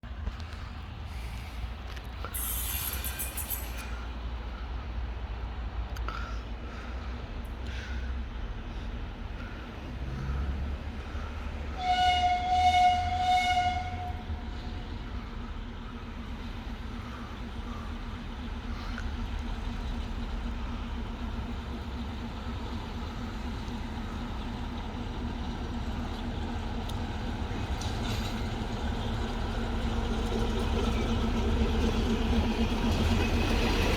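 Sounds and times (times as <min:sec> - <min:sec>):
diesel engine running: 0:00.0 - 0:33.9
railcar horn: 0:11.6 - 0:14.9.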